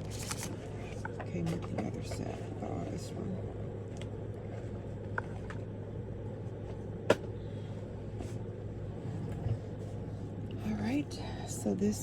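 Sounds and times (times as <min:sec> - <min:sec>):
packaging being handled: 0:00.0 - 0:00.6
steady low hum: 0:00.0 - 0:12.0.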